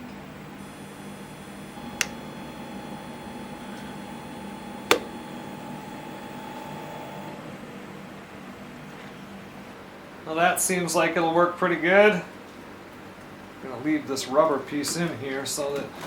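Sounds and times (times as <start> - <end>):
steady low hum: 0.0 - 12.8
sharp clicks: 1.9 - 2.2, 4.8 - 5.1.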